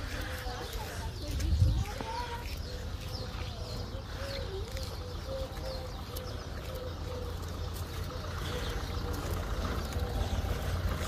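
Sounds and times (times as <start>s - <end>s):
steady low rumble: 0.0s - 11.0s
dove-like cooing: 3.8s - 11.0s.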